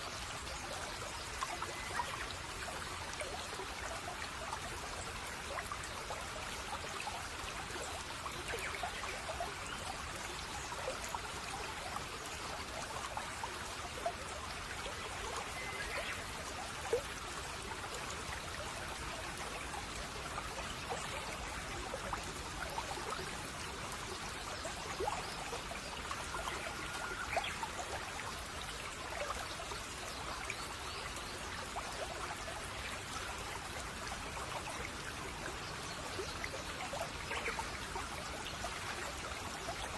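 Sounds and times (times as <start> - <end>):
brook babbling over stones: 0.0 - 39.9
faint bird chirps: 15.1 - 16.4.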